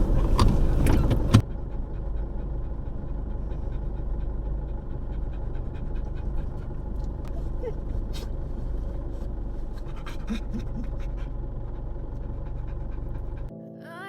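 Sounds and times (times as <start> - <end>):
vehicle door shutting: 0.0 - 1.4
parked vehicle low rumble: 0.0 - 13.5.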